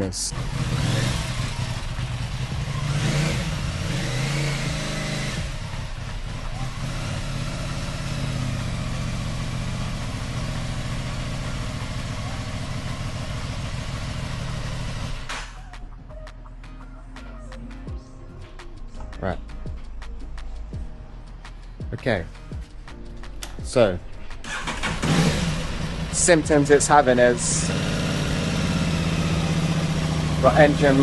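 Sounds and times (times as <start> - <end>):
motorcycle engine idling: 0.0 - 15.5, 23.7 - 31.0.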